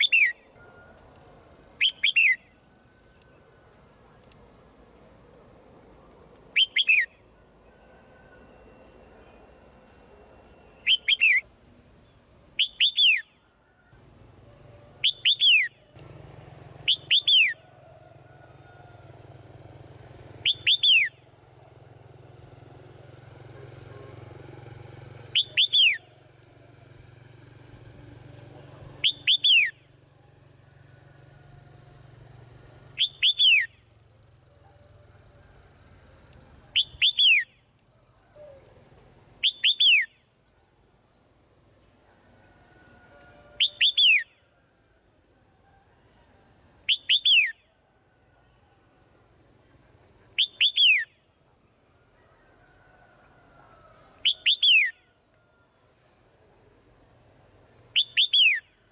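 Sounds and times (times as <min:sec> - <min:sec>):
swallow whistling calls: 0:25.4 - 0:26.1, 0:33.0 - 0:33.7, 0:58.0 - 0:58.7.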